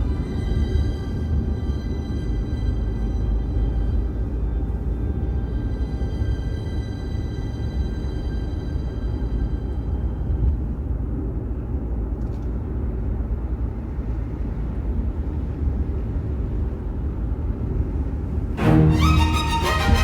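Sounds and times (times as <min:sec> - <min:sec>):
car road rumble from inside: 0:00.0 - 0:18.6
background music: 0:18.6 - 0:20.0.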